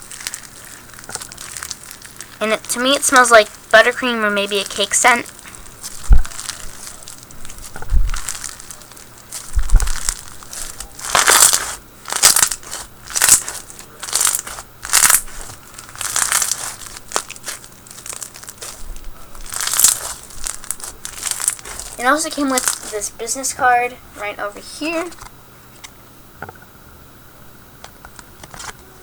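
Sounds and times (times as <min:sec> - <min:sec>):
slime crunchy squishing: 0:00.0 - 0:25.3
soft low thumps: 0:05.3 - 0:08.7, 0:09.4 - 0:11.3.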